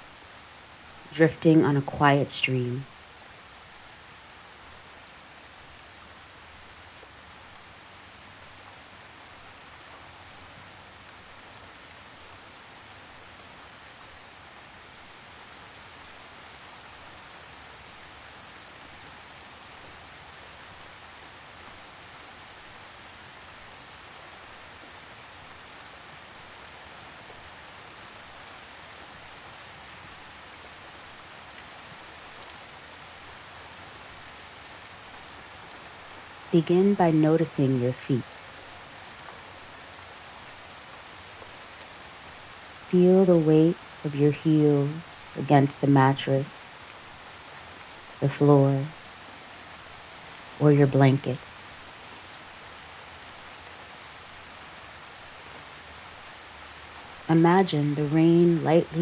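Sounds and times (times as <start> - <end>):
gentle rain falling: 0.0 - 59.0
raindrop ticks: 8.4 - 14.2, 14.9 - 21.2, 40.4 - 42.9, 49.8 - 50.6.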